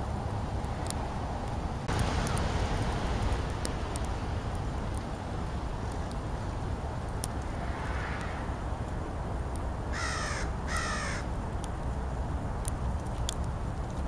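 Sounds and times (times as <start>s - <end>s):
crow cawing: 9.9s - 11.3s.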